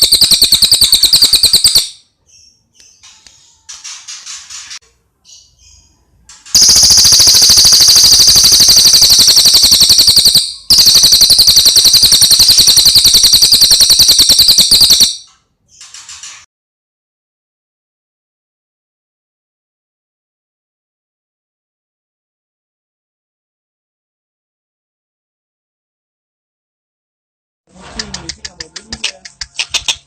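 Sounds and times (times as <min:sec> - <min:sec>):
bird rattling trill: 0:00.0 - 0:02.0, 0:06.6 - 0:15.3
bird chirping: 0:00.0 - 0:03.7, 0:05.2 - 0:16.0.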